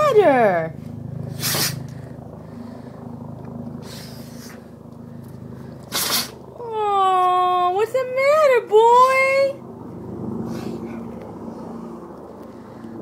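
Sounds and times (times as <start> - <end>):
dog sneezing: 1.3 - 1.8, 5.9 - 6.4
puff of breath: 1.3 - 3.1, 3.8 - 6.4, 10.4 - 13.0
dog rumbling through its nose: 5.8 - 6.5.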